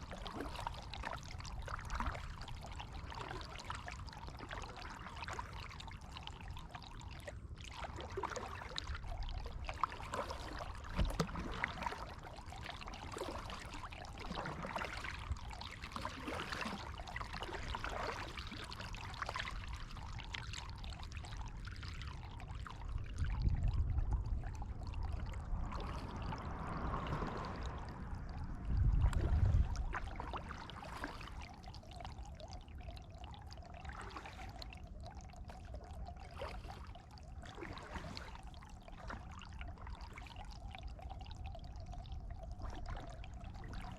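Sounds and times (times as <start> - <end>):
water splashing off paddle blades: 15.8 - 19.5, 25.5 - 31.5
low rumbles: 23.2 - 30.2.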